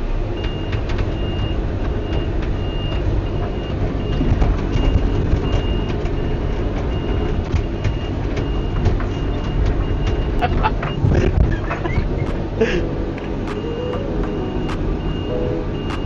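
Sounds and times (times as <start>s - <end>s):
loader engine running: 8.4s - 16.0s
backup alarm beeping: 9.9s - 16.0s.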